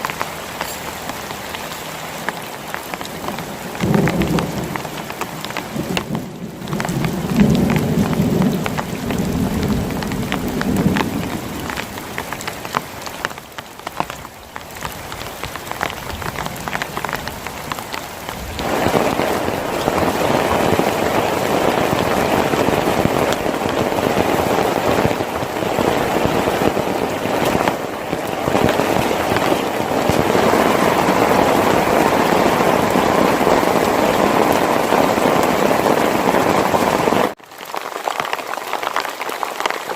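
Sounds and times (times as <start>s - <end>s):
heavy rain pouring: 0.0s - 39.9s
low rumble of thunder: 3.8s - 12.2s.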